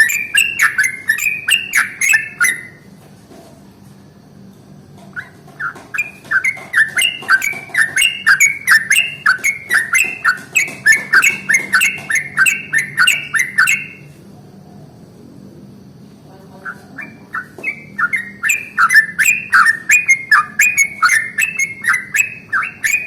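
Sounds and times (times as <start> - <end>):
bird singing bubbly swooping notes: 0.0 - 2.8, 5.2 - 14.1, 16.7 - 23.0
faint low hum: 0.0 - 23.0.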